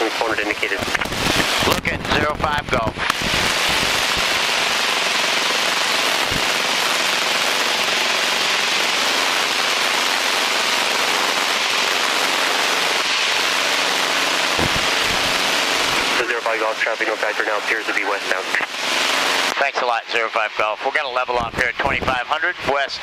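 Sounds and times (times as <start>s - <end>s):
airplane engine and propeller drone: 0.0s - 23.0s
rush of air: 0.9s - 2.0s, 2.8s - 4.8s, 14.6s - 16.2s.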